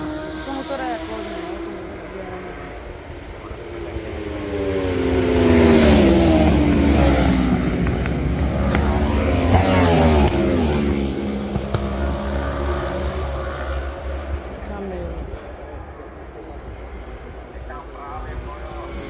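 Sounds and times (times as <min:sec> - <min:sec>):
racing motorcycles passing at speed: 0:00.0 - 0:19.0.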